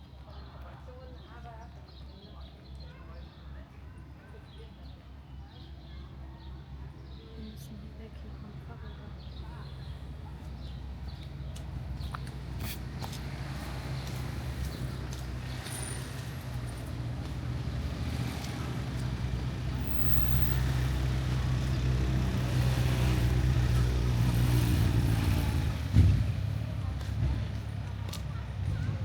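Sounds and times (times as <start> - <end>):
vehicle engine humming: 7.7 - 29.0.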